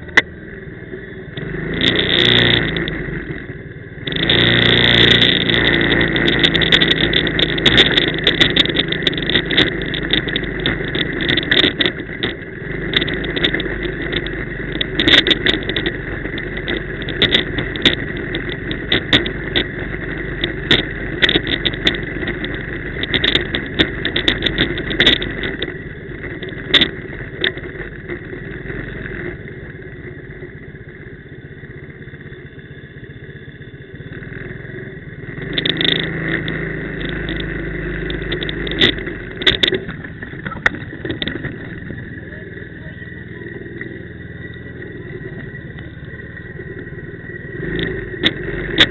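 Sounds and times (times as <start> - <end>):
quad bike engine running: 0.0 - 48.9
sharp knocks and rattles: 4.0 - 29.4, 35.3 - 48.9.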